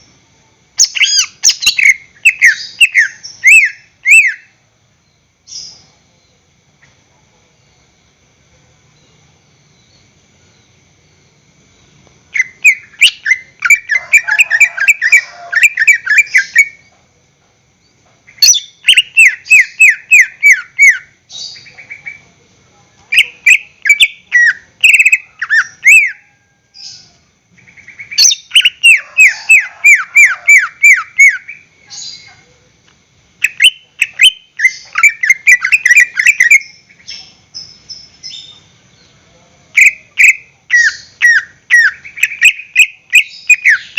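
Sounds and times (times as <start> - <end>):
bird singing whistled notes: 0.8 - 5.9, 12.4 - 16.8, 18.4 - 22.2, 23.1 - 27.1, 27.7 - 32.3, 33.4 - 39.1, 39.8 - 43.9.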